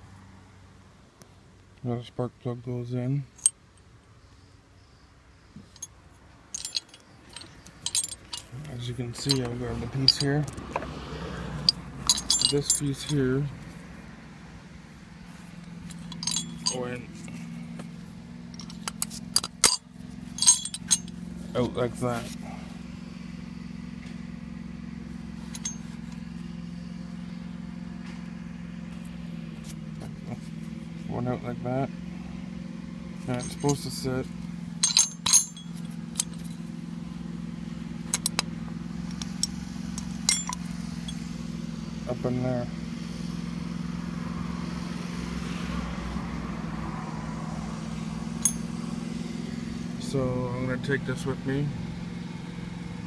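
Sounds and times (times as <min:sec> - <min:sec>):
light metallic clink: 0:05.7 - 0:10.6, 0:11.6 - 0:13.4, 0:15.8 - 0:17.3, 0:18.5 - 0:21.2, 0:25.4 - 0:26.2, 0:33.2 - 0:34.1, 0:34.8 - 0:36.7, 0:38.0 - 0:41.4, 0:48.4 - 0:48.8
low machine hum: 0:11.4 - 0:42.2.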